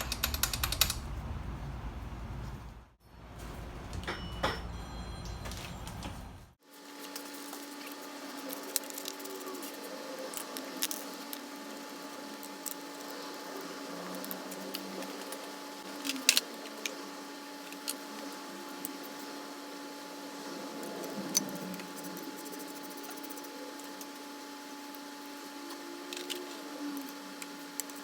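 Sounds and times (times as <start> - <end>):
steady hum: 6.2 - 28.0.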